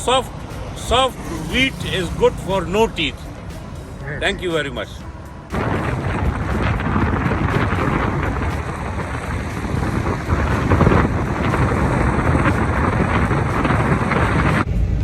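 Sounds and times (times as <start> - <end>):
moving vehicle: 0.0 - 15.0
wind on microphone: 5.0 - 15.0.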